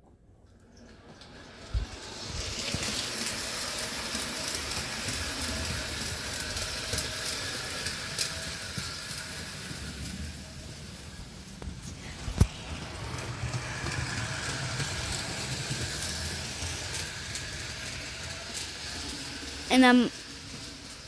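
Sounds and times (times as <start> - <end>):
wheels clicking on rails: 0.5 - 21.0
model train rolling on track: 0.6 - 21.0.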